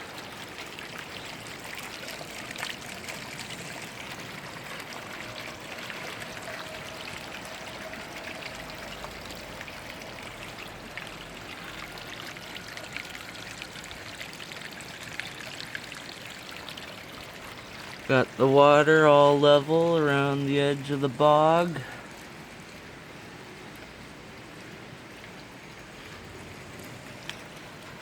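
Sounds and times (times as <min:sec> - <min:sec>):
waterfall splashing: 0:17.6 - 0:23.4.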